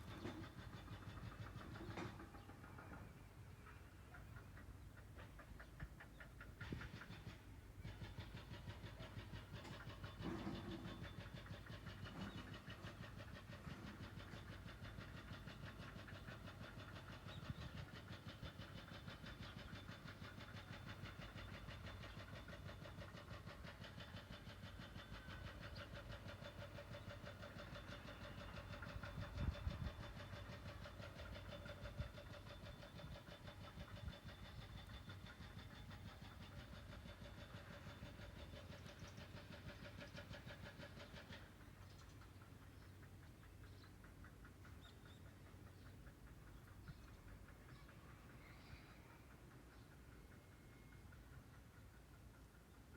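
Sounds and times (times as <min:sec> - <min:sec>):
faint thin steady tones: 0:41.7 - 0:52.9.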